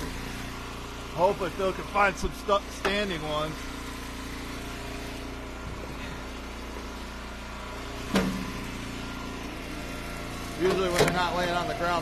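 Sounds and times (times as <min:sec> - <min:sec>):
wood splitter engine running: 0:00.0 - 0:12.0
sharp knock: 0:08.1 - 0:08.5.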